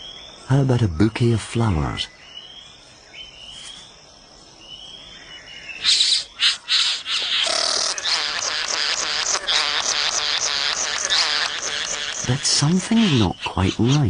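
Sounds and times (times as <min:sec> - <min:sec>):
harsh rasping bird calls: 0:05.2 - 0:14.0
bird whistling: 0:05.7 - 0:08.0.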